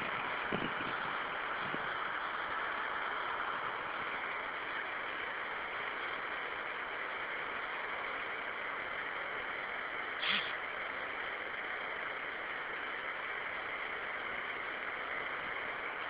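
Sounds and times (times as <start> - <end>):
rain falling: 0.0 - 16.0.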